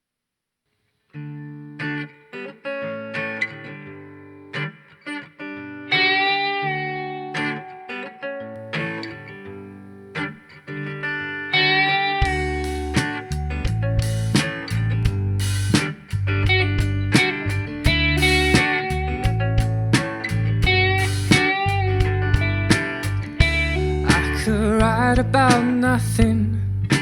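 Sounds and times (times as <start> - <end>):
guitar chords ringing: 1.2 - 27.0
bass guitar: 11.6 - 27.0
drums: 12.2 - 27.0.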